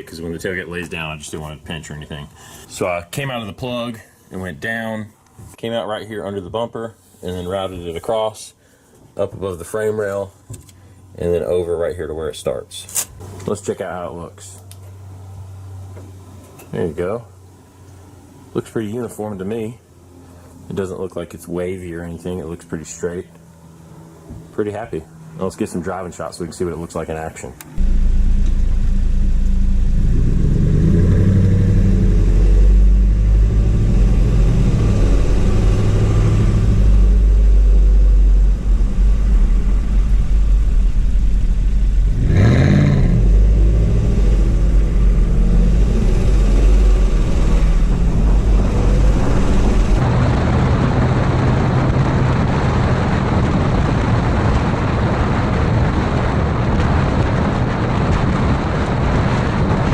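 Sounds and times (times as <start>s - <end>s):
wind and road noise: 0.0s - 59.9s
vehicle engine revving: 27.7s - 59.8s.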